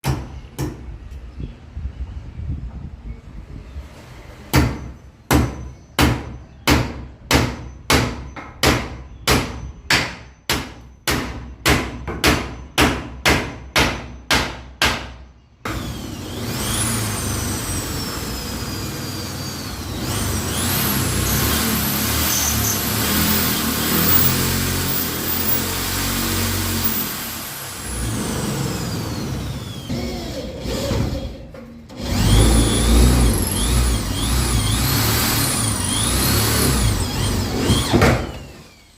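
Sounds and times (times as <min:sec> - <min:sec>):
hammer driving a nail: 0:04.5 - 0:15.8, 0:33.7 - 0:38.4
electric drill whining: 0:15.7 - 0:38.9.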